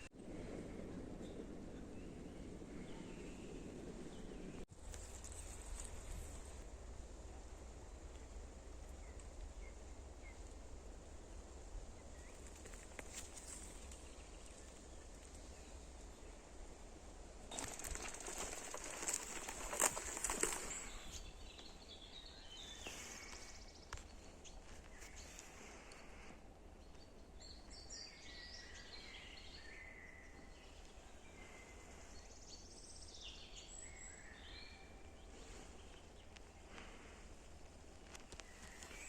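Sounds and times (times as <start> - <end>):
forest birds singing: 0.0 - 6.7, 7.3 - 39.0
crackling rustling noise: 2.7 - 10.6, 11.3 - 16.3, 17.2 - 21.8, 22.7 - 26.3, 35.3 - 39.0.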